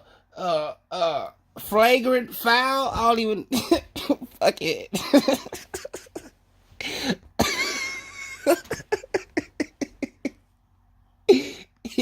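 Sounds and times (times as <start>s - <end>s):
man coughing: 3.5s - 10.3s.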